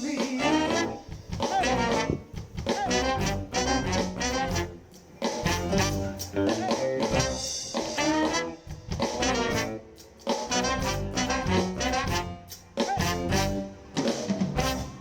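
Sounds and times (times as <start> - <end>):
person singing: 0.0 - 4.1
soul band playing: 0.0 - 15.0.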